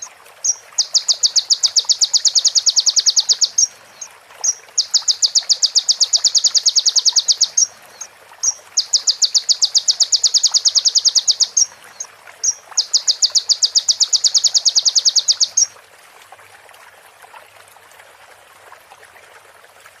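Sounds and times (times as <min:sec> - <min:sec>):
bird singing high trills: 0:00.8 - 0:03.7, 0:04.4 - 0:11.7, 0:12.4 - 0:15.7.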